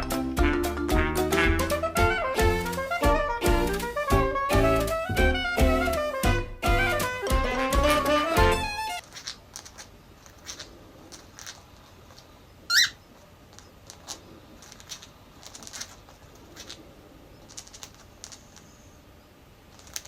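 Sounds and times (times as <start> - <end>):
soft clicks and scratches: 9.0 - 12.5, 13.1 - 19.0, 19.7 - 20.0
cockatiel chirp: 12.7 - 13.1.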